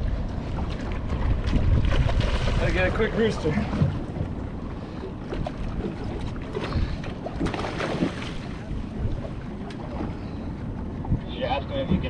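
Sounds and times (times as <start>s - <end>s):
water rumbling: 0.0s - 12.0s
wind buffeting microphone: 0.0s - 12.0s
small boat engine: 2.8s - 12.0s.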